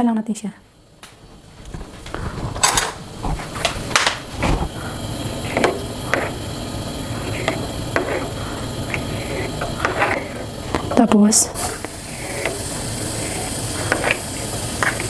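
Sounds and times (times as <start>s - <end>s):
shells and cookware clattering: 2.0s - 4.3s.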